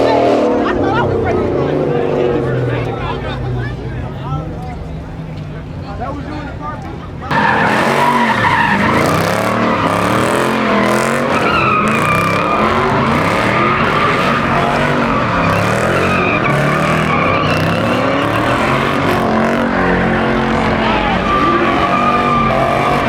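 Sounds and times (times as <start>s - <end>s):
car engine revving hard: 0.0s - 3.6s, 7.3s - 23.0s
tires squealing: 7.2s - 23.0s.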